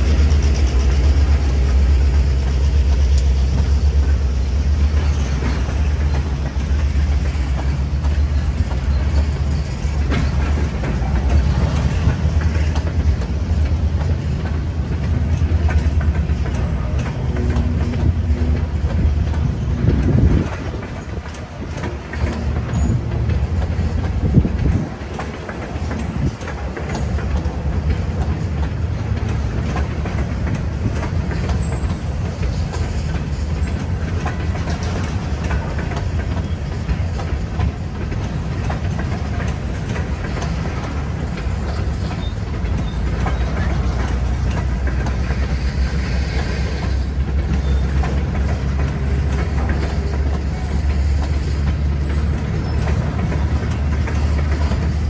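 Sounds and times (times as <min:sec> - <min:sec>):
train wheels rumbling on rail: 0:00.0 - 0:55.0
wheels clicking over track: 0:00.0 - 0:55.0.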